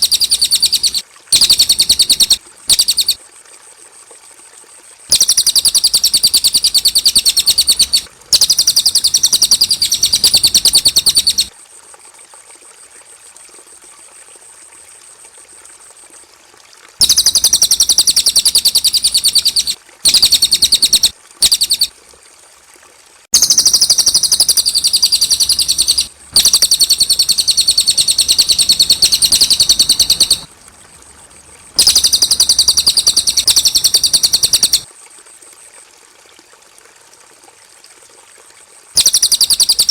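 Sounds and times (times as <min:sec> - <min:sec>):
songbird chirping trills: 0:00.0 - 0:03.2, 0:05.1 - 0:11.5, 0:17.0 - 0:21.9, 0:23.4 - 0:34.9, 0:39.0 - 0:39.9.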